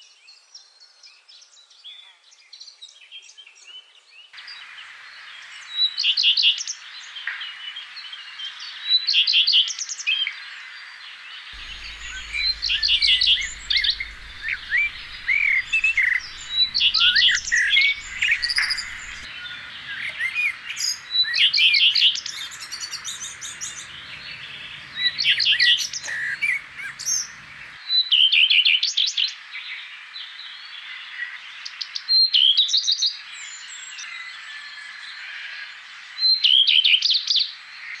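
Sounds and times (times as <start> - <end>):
birds singing trilled phrases: 11.6 - 27.8
soft bird chirps: 11.6 - 27.8.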